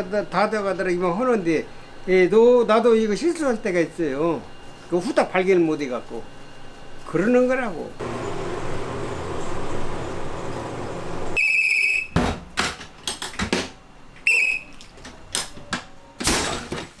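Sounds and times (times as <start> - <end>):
steady noisy hum: 0.0 - 11.4
shrill whistle blast: 11.3 - 12.2, 14.2 - 14.8.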